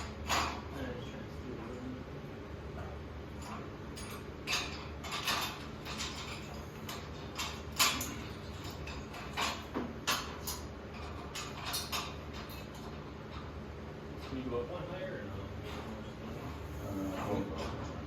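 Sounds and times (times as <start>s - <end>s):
metal scaffolding clanks and scrapes: 3.4s - 13.0s.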